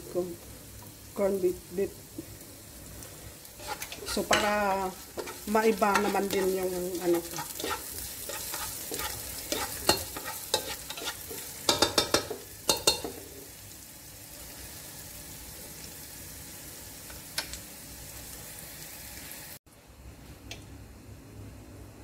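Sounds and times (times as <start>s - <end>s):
garlic and onion sizzling in oil: 0.0s - 19.6s
wooden spatula scraping a pot: 3.6s - 12.1s.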